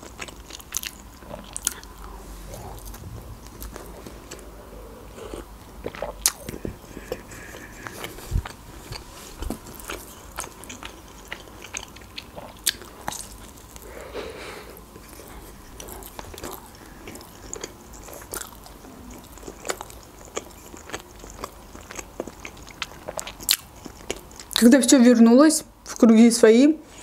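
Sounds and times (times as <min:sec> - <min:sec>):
biting and chewing: 0:05.2 - 0:13.9, 0:15.0 - 0:24.6.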